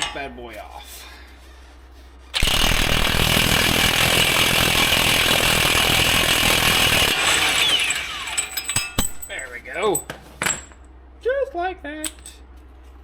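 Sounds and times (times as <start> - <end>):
impact wrench hammering: 2.4 - 9.4.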